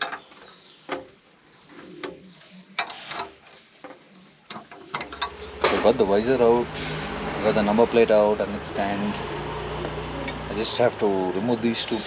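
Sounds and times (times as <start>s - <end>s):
pigeons cooing: 0.0s - 8.0s, 8.7s - 12.0s
hand tools clicking on metal parts: 4.5s - 5.9s.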